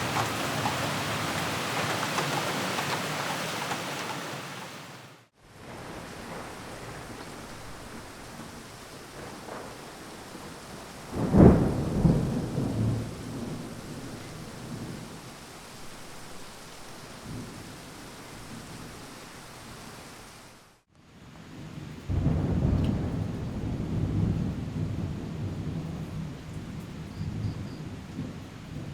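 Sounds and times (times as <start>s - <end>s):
steady rain: 0.0s - 28.9s
thunder rumbling: 5.6s - 15.3s, 21.7s - 28.9s.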